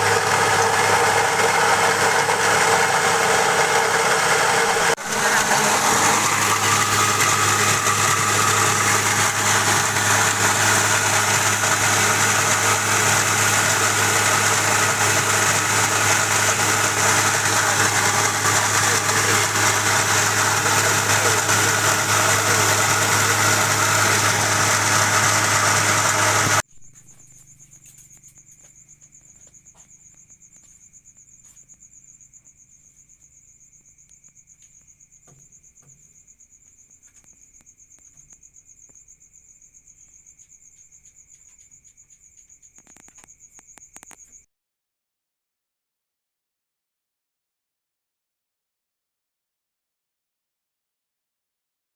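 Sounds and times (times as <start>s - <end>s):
rice huller machine humming: 0.0s - 26.6s
crickets chirping: 26.7s - 44.5s.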